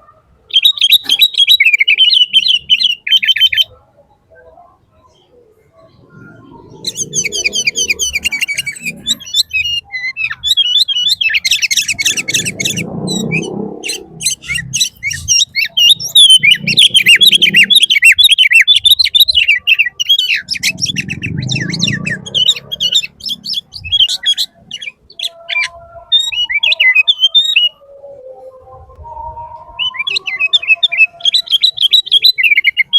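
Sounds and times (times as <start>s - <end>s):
birds chirping and trilling: 0.0s - 32.9s
low muffled noise: 3.6s - 10.5s, 27.7s - 30.0s.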